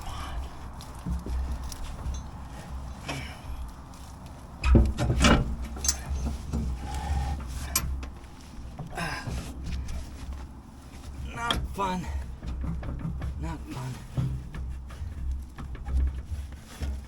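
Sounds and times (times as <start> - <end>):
metal clunks and clicks: 0.0 - 17.0
driveshaft scraping on metal: 4.6 - 8.2.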